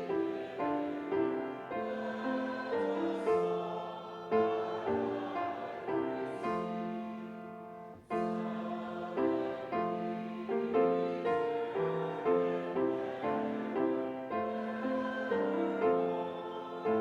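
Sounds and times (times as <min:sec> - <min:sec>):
piano playing a slow hymn: 0:00.0 - 0:17.0
voices singing: 0:00.0 - 0:17.0.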